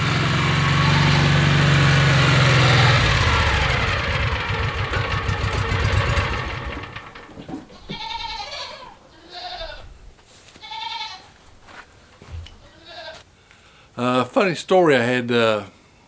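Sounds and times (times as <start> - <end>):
vehicle engine running: 0.0 - 8.2
livestock bleating: 0.6 - 1.8, 7.8 - 9.9, 10.6 - 11.3, 12.6 - 13.2.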